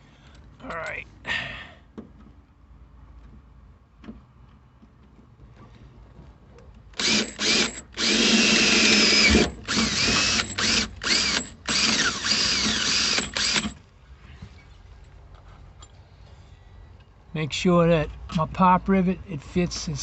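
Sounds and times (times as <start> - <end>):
electric drill drilling sheet metal: 7.0 - 13.8.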